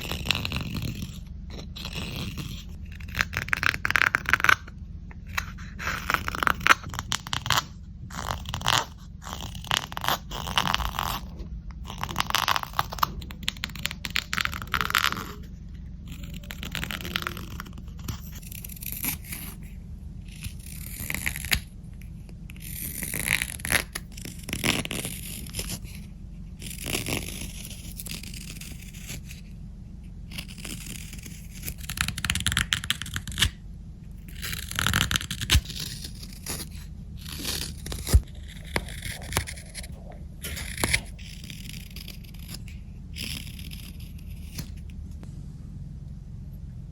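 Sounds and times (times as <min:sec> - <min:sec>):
knife scraping wooden spoon: 0:00.0 - 0:21.6, 0:34.2 - 0:44.8
steady low hum: 0:00.0 - 0:46.9.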